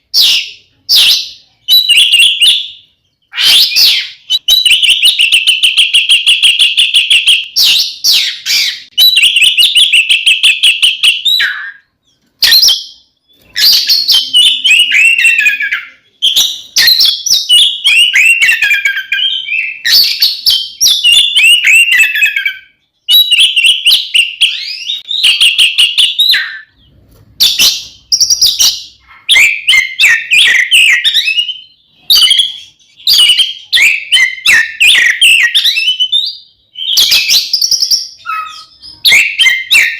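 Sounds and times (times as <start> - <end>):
bird singing trills: 0.0 - 39.9.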